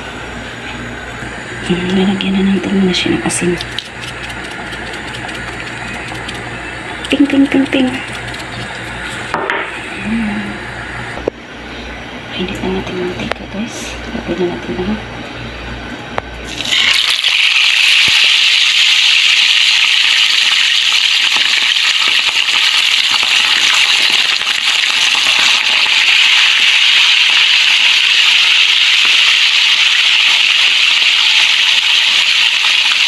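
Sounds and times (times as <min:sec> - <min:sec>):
fish sizzling in hot oil: 0:03.8 - 0:06.5, 0:16.5 - 0:33.0.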